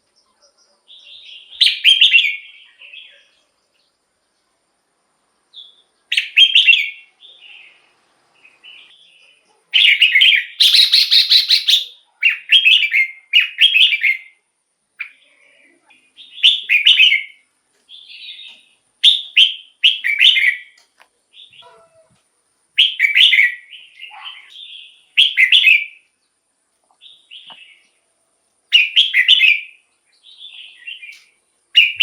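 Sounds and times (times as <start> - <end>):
bulbul singing warbled phrases: 5.6 - 14.4, 15.0 - 17.4, 22.8 - 26.0, 28.7 - 32.0.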